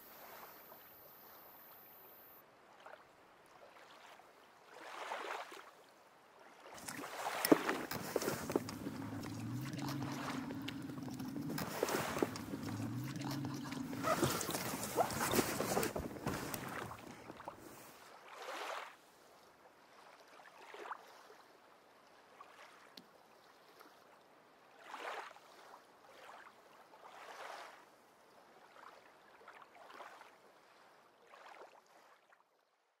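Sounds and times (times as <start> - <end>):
water splashes: 3.6 - 5.8, 6.4 - 18.9.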